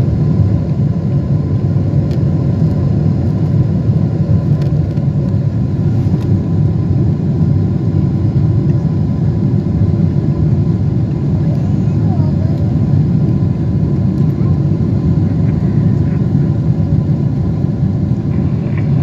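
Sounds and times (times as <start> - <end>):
airplane engines and airflow rumble: 0.0 - 19.0
faint steady whine: 0.0 - 19.0.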